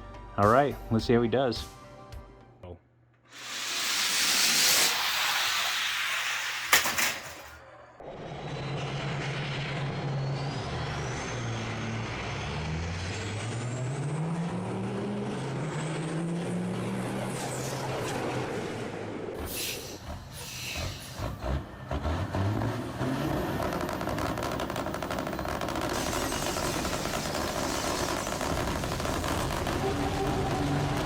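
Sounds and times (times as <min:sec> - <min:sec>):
air brake hiss: 0:03.3 - 0:07.5, 0:19.4 - 0:21.4
diesel truck engine pulling away: 0:08.0 - 0:31.0.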